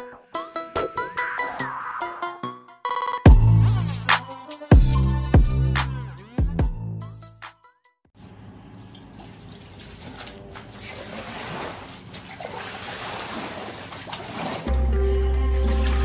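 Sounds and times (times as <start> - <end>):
water trickling and splashing: 8.2 - 16.0.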